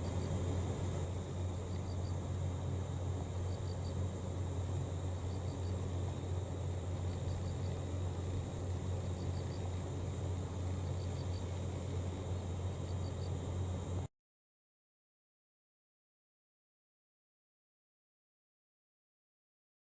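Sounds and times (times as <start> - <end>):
constant low hum: 0.0 - 14.1
crickets chirping: 0.0 - 14.1
high insect trill: 0.0 - 14.1.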